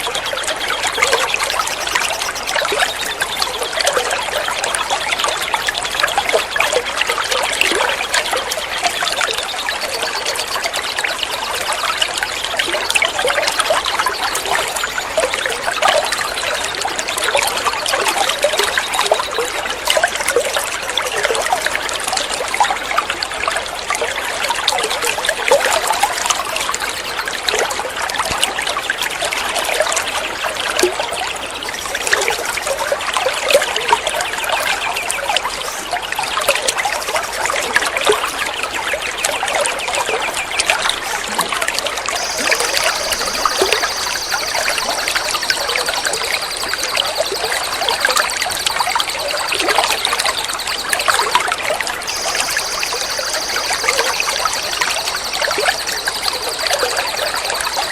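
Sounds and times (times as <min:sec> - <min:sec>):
high buzzing trill: 0:42.2 - 0:48.4, 0:52.1 - 0:57.9.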